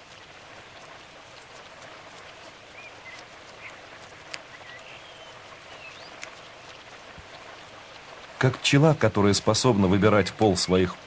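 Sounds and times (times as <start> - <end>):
light rain hiss: 0.0 - 11.0
sharp water drips: 0.0 - 11.0
faint bird chirps: 2.6 - 6.4.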